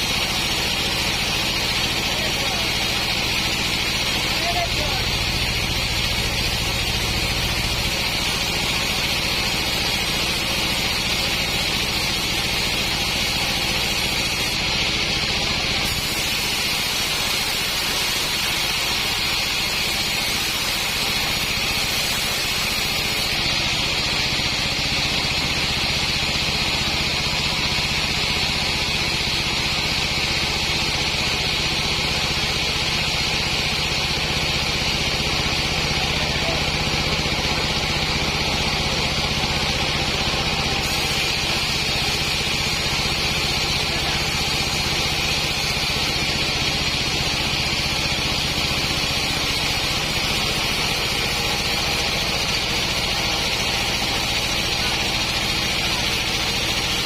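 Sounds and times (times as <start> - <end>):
sawmill engine hum: 0.0 - 57.0.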